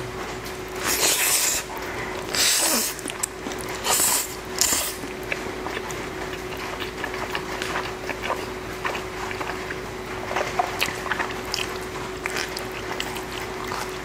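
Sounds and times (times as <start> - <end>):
wet chewing clicks: 0.7 - 14.0
loud noodle slurps: 0.8 - 1.7, 2.3 - 3.1, 3.8 - 5.0.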